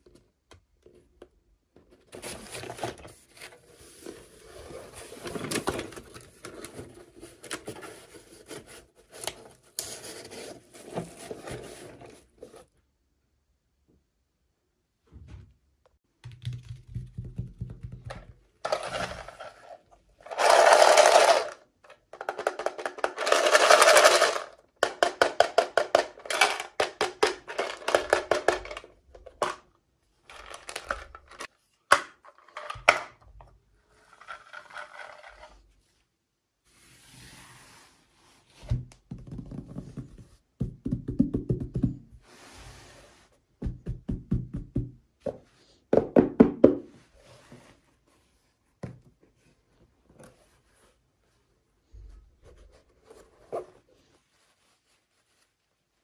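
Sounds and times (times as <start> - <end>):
plastic and cardboard rustling: 1.8 - 12.7, 18.6 - 29.6, 30.2 - 33.1, 47.1 - 56.0.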